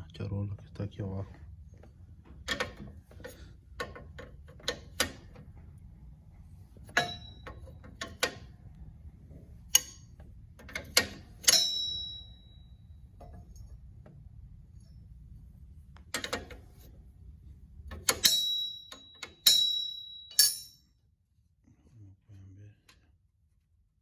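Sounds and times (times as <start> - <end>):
ringing metal clink: 6.9 - 7.8, 11.4 - 12.9, 18.1 - 20.9.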